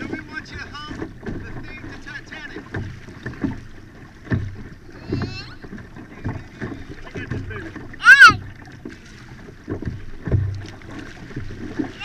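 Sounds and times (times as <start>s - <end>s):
water and wind rumble on hull: 0.0s - 12.0s
small child vocalising: 8.0s - 8.4s.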